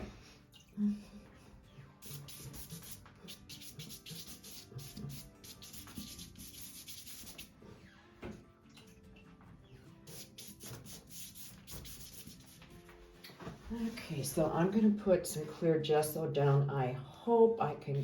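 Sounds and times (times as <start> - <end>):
paintbrush scrubbing on paper: 2.0 - 7.5, 10.1 - 12.8.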